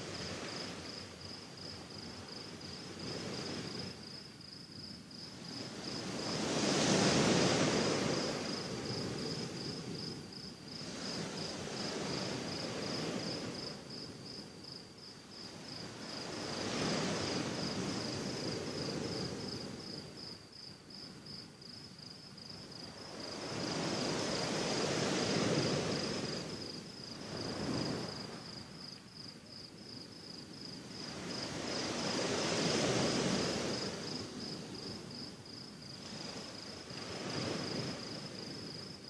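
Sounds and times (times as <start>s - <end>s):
crickets chirring: 0.0s - 39.0s
sea waves washing onto shore: 5.4s - 14.2s, 15.5s - 20.1s, 22.9s - 28.7s, 30.8s - 39.0s.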